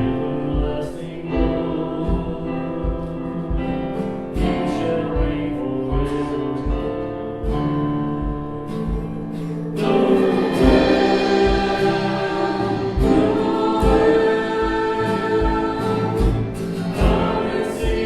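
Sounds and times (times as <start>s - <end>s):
low drum beat: 0.0s - 18.0s
worship band playing gospel song: 0.0s - 18.0s
voices singing sustained notes: 8.7s - 18.0s.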